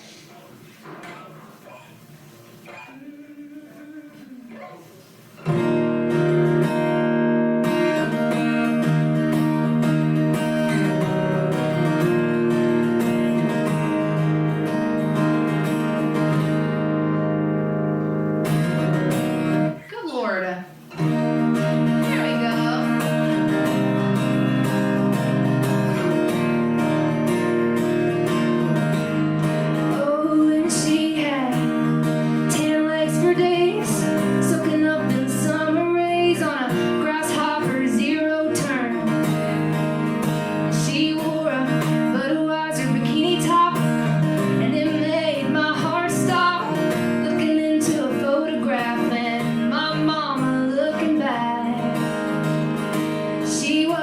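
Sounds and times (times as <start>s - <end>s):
strummed acoustic guitar: 0.0s - 54.0s
woman singing: 2.7s - 4.6s, 21.9s - 23.8s, 29.9s - 39.7s, 40.6s - 52.2s, 53.4s - 54.0s.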